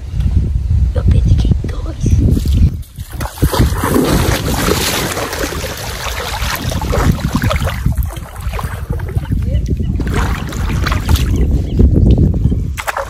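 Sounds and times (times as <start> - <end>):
wind buffeting microphone: 0.0 - 13.0
water splashing around boat: 3.0 - 11.6, 12.8 - 13.0.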